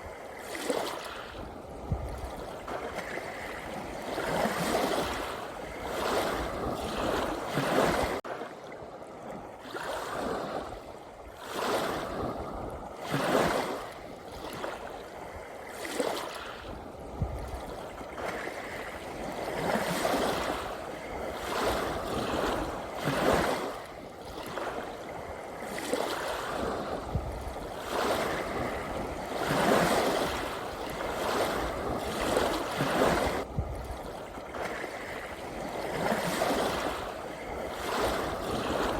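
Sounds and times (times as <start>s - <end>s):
small sea waves washing in: 0.0s - 38.9s.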